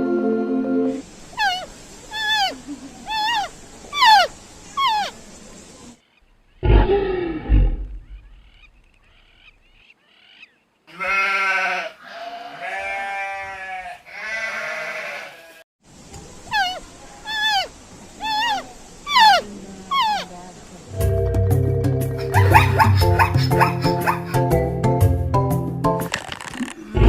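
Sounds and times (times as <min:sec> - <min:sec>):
animal whimpering cries: 0:01.4 - 0:05.2, 0:16.5 - 0:20.3
loud low animal call: 0:01.4 - 0:05.2, 0:06.6 - 0:08.7
long wavering bleats: 0:10.9 - 0:15.6.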